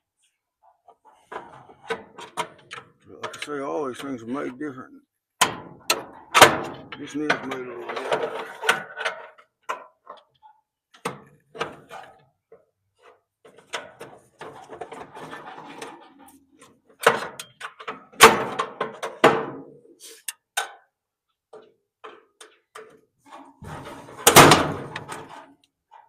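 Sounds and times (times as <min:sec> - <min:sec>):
tools scraping sheet metal: 0:23.3 - 0:25.5.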